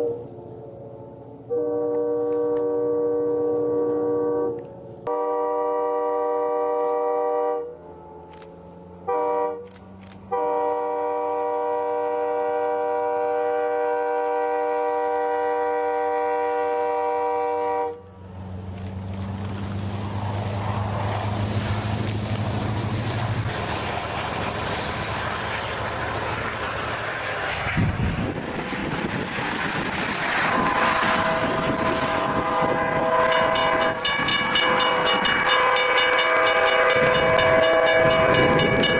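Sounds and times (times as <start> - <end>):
train air horn: 0.0 - 0.5, 1.1 - 8.2, 9.0 - 18.1, 30.4 - 38.9
train ploughing through snow: 0.0 - 38.9
rapid even ringing: 33.3 - 38.9.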